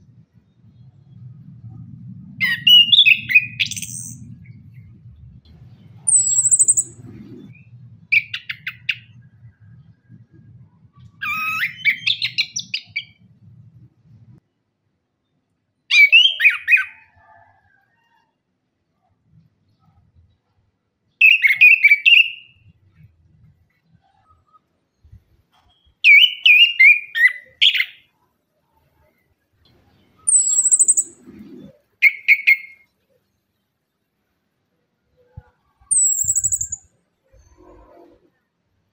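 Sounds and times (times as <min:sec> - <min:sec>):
low steady rumble: 0:00.0 - 0:11.3, 0:12.8 - 0:14.4
thrush singing whistled phrases: 0:02.4 - 0:04.3, 0:06.0 - 0:09.2, 0:11.2 - 0:13.2, 0:30.2 - 0:32.8, 0:35.8 - 0:36.9.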